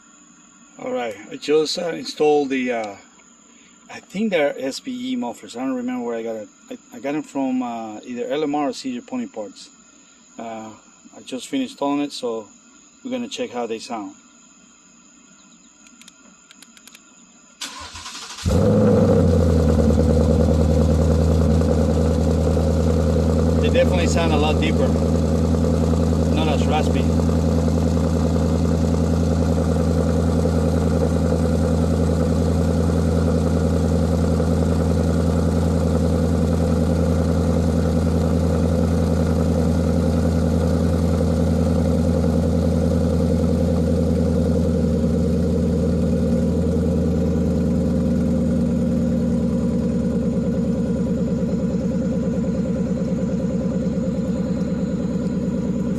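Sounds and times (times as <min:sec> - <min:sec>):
car engine idling: 0:17.6 - 0:55.9.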